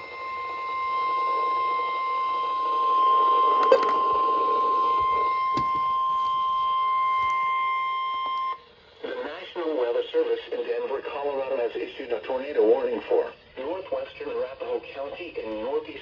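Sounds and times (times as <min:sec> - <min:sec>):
high-pitched warning alarm tone: 0:00.0 - 0:08.8.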